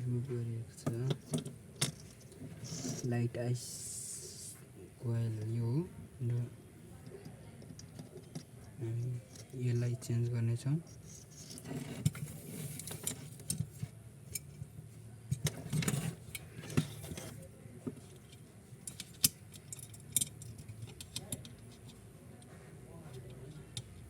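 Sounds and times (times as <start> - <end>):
low steady hum: 0.0 - 24.0
hand tools clicking and clinking: 18.1 - 21.6.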